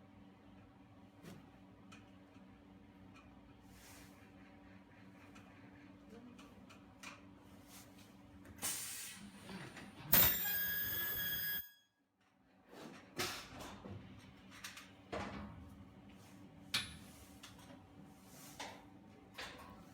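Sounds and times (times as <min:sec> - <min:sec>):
welding machine high-pitched squeal: 0:10.2 - 0:11.7.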